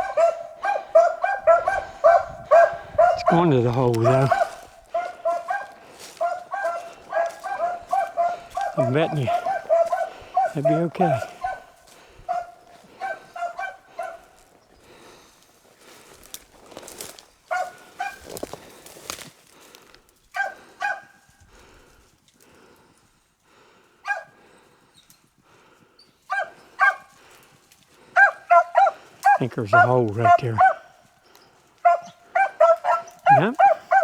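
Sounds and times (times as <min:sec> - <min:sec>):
dogs baying: 0:00.0 - 0:15.2, 0:16.9 - 0:18.7, 0:20.4 - 0:21.7, 0:24.0 - 0:24.6, 0:26.3 - 0:34.0.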